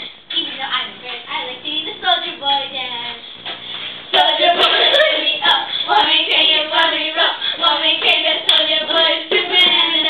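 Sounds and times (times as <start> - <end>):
voices singing loudly: 4.2 - 10.0.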